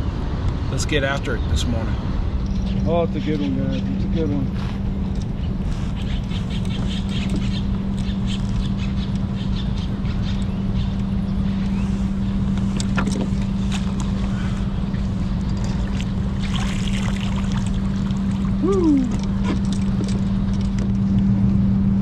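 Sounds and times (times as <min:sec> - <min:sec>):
steady low hum: 0:00.0 - 0:22.0
small splashes: 0:15.7 - 0:20.0.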